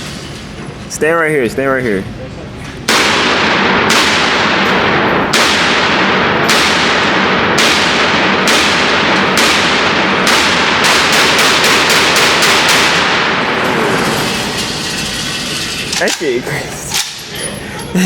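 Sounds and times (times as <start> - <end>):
gunshots: 2.9 - 13.9.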